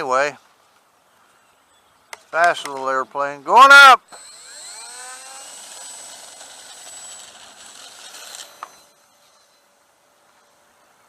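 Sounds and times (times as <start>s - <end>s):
model plane motor whining: 4.0s - 9.6s.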